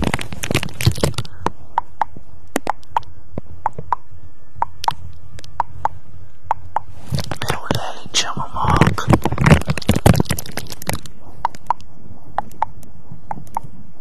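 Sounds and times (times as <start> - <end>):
low steady hum: 0.0 - 14.0
soft sharp clicks: 1.4 - 6.9.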